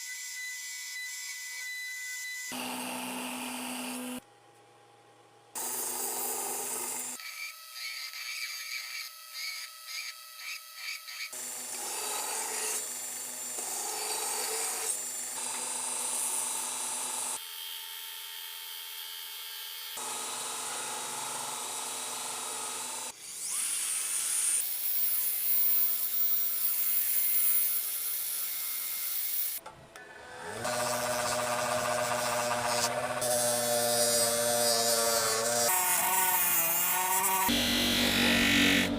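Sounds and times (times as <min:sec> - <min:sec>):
tools grinding and filing steel: 0:05.6 - 0:16.3, 0:20.0 - 0:38.9.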